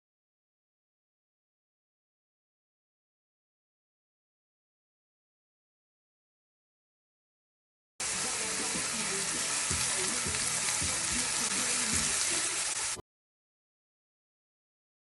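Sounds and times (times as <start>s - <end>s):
food sizzling in a pot: 8.0s - 13.0s.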